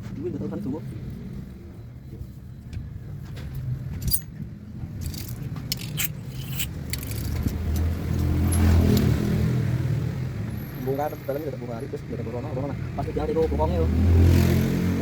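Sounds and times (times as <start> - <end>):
vehicle engine humming: 0.0 - 15.0
hand tools clinking on metal: 4.0 - 4.4.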